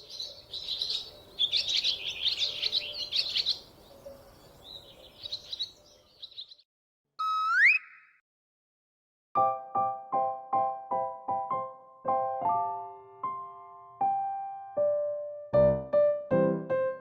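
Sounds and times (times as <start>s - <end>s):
small birds chirping: 0.0s - 6.6s
rising whistle-like tone: 7.2s - 8.2s.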